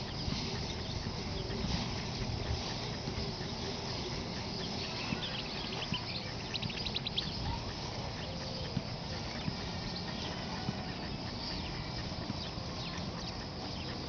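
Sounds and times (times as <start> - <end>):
outdoor background hiss: 0.0 - 14.0
short high bird chirps: 4.6 - 10.4.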